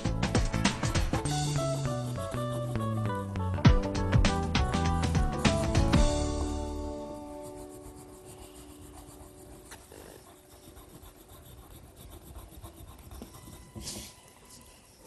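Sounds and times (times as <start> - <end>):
drawing tool scratching paper: 0.6 - 3.3, 4.8 - 15.0.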